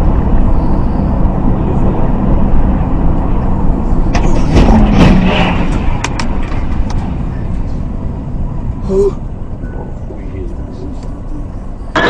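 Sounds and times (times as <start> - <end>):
car rumbling on road: 0.0 - 12.0
sharp knocks and clatters: 4.1 - 7.2.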